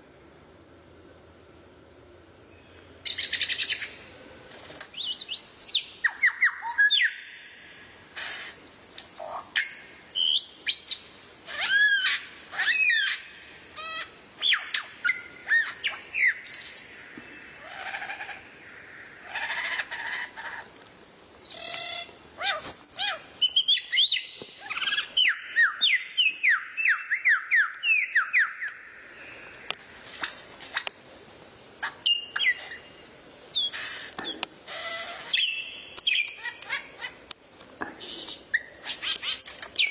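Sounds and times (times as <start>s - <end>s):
songbird singing: 0.0s - 31.2s, 31.8s - 39.9s.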